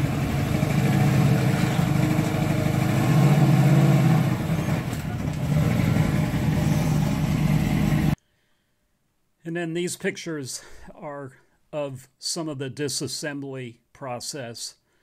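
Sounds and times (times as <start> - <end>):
car engine at low revs: 0.0 - 8.2.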